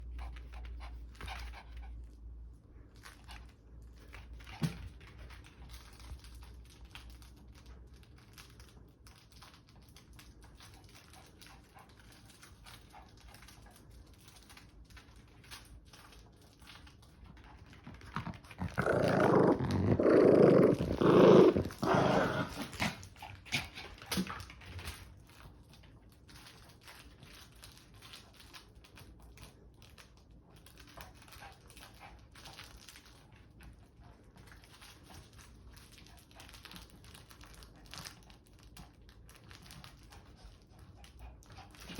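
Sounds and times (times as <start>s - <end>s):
puppy paws clicking and scuffing: 0.0s - 41.9s
puppy growling: 17.6s - 24.3s.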